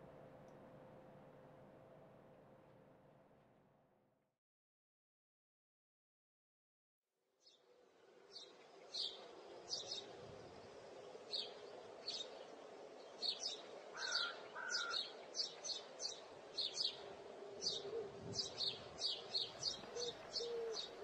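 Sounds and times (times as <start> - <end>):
faint steady hum: 0.0 - 4.0, 7.5 - 21.0
birds chirping: 8.3 - 21.0.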